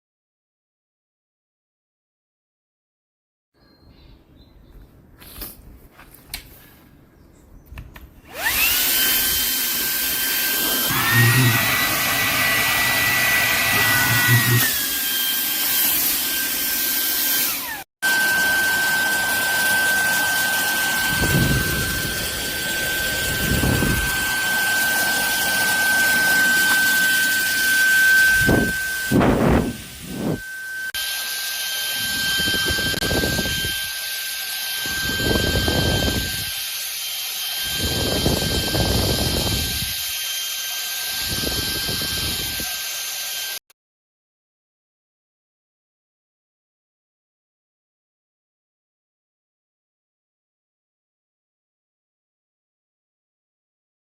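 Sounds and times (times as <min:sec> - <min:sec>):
handheld vacuum motor whine: 0:08.2 - 0:43.7.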